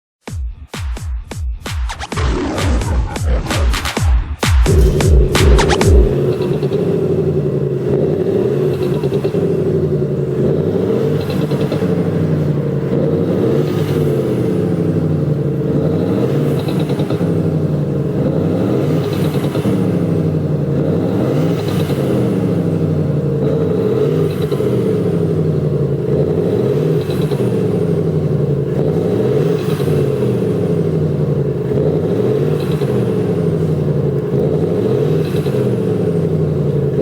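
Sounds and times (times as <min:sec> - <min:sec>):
electronic music: 0:00.3 - 0:06.3
car exhaust revving: 0:02.0 - 0:37.0
exhaust crackles: 0:02.0 - 0:37.0.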